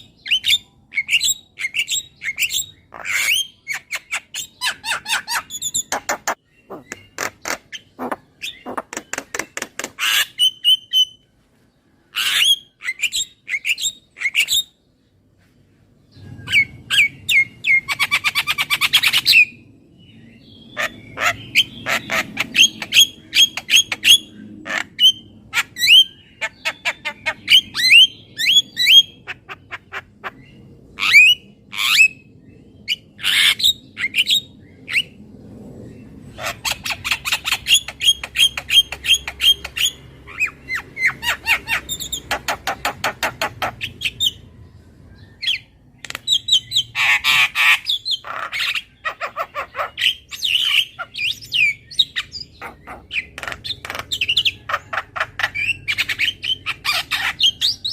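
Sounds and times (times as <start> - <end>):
bird harsh squawks: 1.0 - 11.1, 20.8 - 28.0, 36.4 - 44.4, 46.3 - 57.8.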